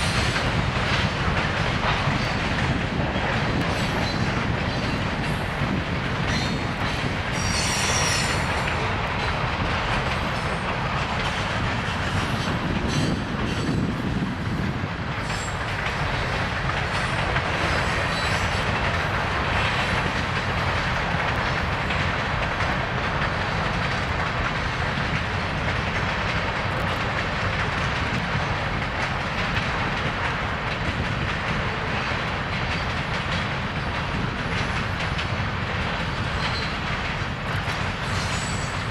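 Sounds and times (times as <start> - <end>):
train wheels on rails: 0.0 - 38.9
high-pitched wheel squeal: 7.4 - 8.5.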